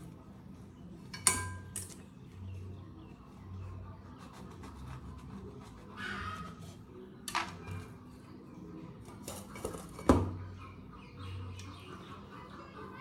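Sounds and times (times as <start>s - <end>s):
kitchenware clinking: 1.1s - 2.1s.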